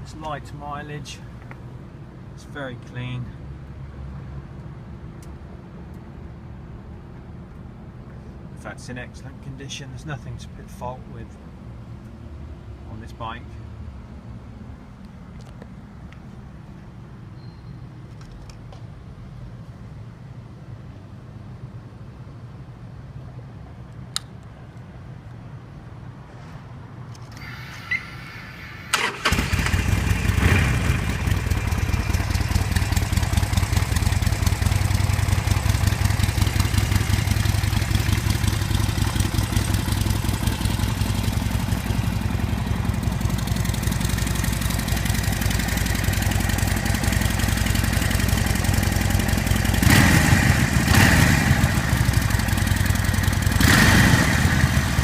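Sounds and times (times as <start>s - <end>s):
motorcycle engine starting and idling: 27.2s - 55.0s.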